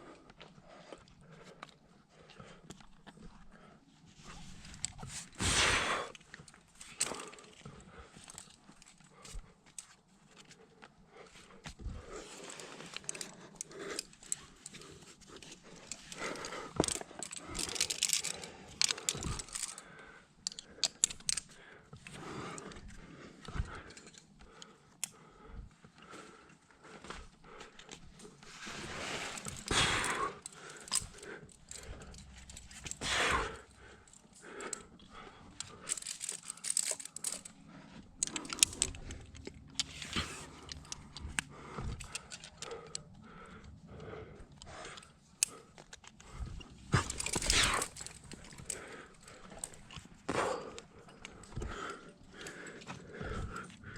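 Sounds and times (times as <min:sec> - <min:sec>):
metal climbing gear jingling: 0:06.1 - 0:10.6, 0:11.6 - 0:25.2, 0:27.0 - 0:43.7, 0:44.3 - 0:53.9
rustling and scraping on rock: 0:28.2 - 0:34.9, 0:46.2 - 0:53.7.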